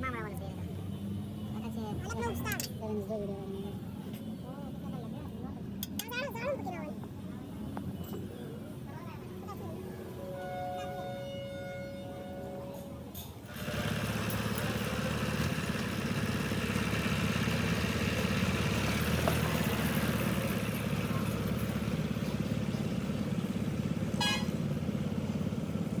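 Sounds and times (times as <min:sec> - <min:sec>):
engine chugging: 0:12.6 - 0:26.0
brief high horn toot: 0:24.1 - 0:24.6.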